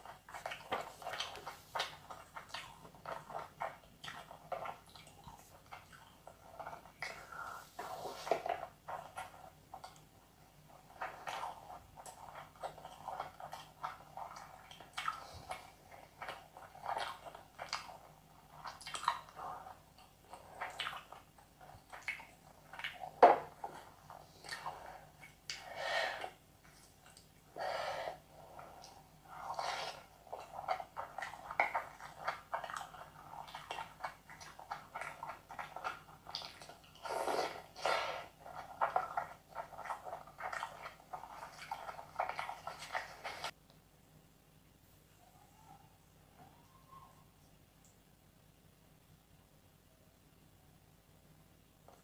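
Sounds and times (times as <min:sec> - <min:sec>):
person chewing: 0:00.0 - 0:10.0, 0:10.7 - 0:27.4, 0:28.4 - 0:43.6
mouth clicks and smacks: 0:10.9 - 0:27.4
noisy breath: 0:25.6 - 0:26.4, 0:27.5 - 0:28.8.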